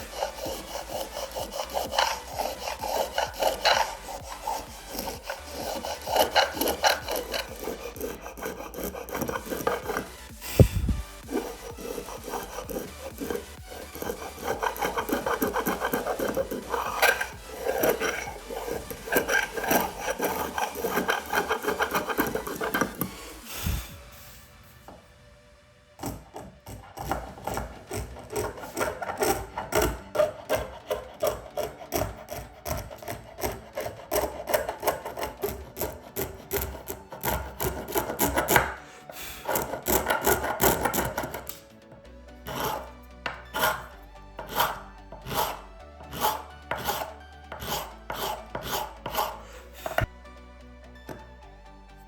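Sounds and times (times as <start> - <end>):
tool scraping across wood: 0.0 - 25.2, 25.9 - 50.2, 51.0 - 51.3.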